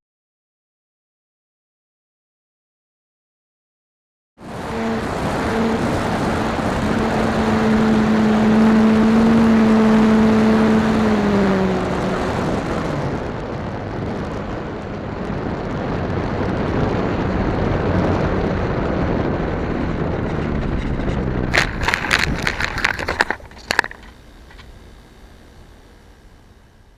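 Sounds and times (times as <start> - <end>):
loud rushing noise: 4.4 - 23.5
model plane motor droning: 4.4 - 26.9.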